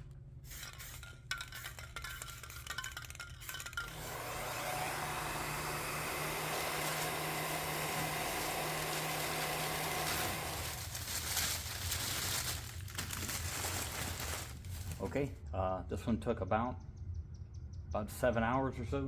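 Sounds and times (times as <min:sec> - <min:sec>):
small motor humming: 0:03.8 - 0:11.8.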